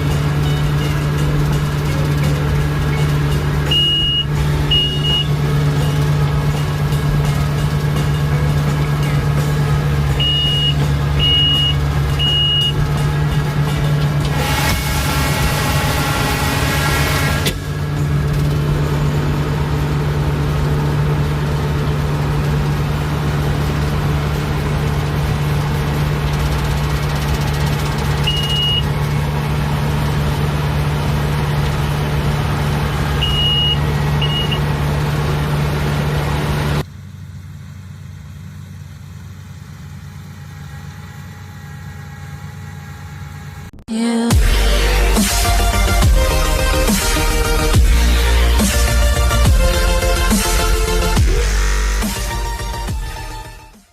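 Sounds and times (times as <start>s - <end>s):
machine engine humming: 0.0s - 53.9s
short high beeps: 3.6s - 6.0s, 10.1s - 12.8s, 28.2s - 28.9s, 33.2s - 34.6s.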